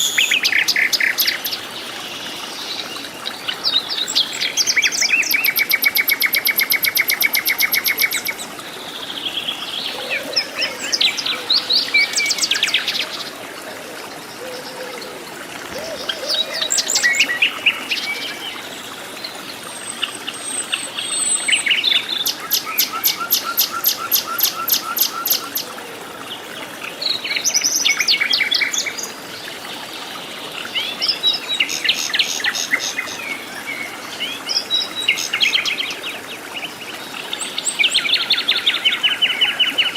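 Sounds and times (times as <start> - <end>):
birds trilling and chirping: 15.7 - 18.6.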